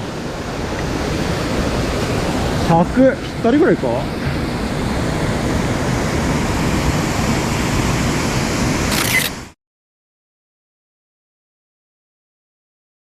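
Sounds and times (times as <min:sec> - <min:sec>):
mountain stream rushing: 0:00.0 - 0:09.5.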